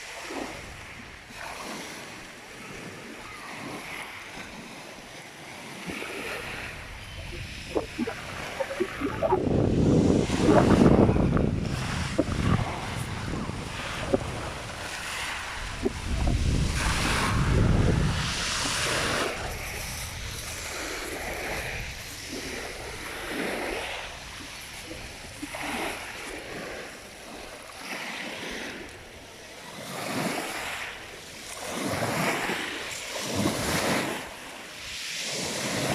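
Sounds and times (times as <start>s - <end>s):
small waves washing ashore: 0.0s - 35.9s
wind buffeting microphone: 5.8s - 26.9s.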